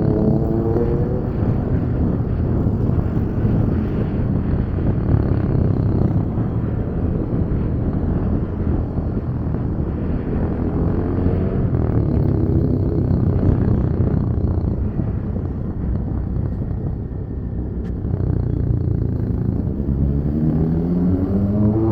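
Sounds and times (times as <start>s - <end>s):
motorcycle engine cruising: 0.0s - 21.9s
wind rushing over microphone: 0.0s - 21.9s.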